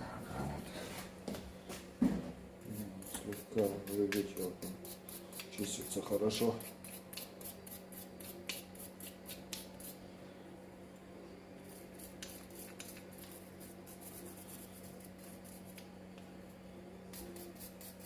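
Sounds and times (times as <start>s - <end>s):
steady low hum: 0.0s - 18.0s
small brush scrubbing metal part: 11.7s - 15.8s.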